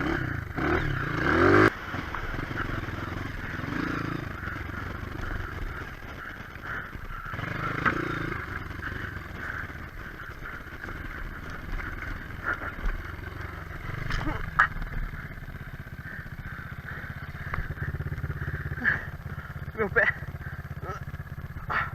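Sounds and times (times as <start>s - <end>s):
motorcycle engine running: 0.0s - 21.9s.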